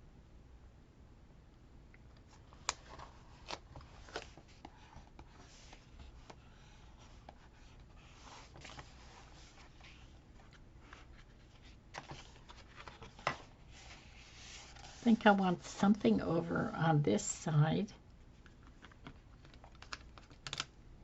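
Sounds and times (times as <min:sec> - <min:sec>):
paper rustling: 0:02.3 - 0:15.2.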